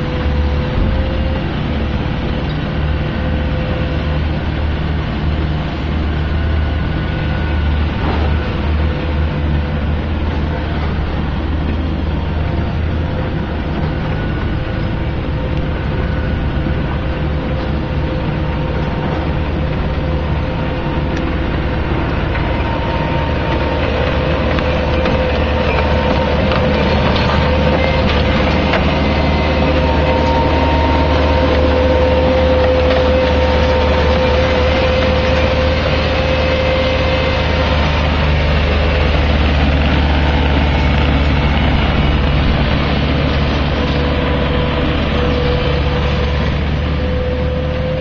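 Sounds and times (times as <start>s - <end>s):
hydraulic whine: 0.0s - 48.0s
loader engine drone: 0.0s - 48.0s
debris crackling and snapping: 22.2s - 44.1s.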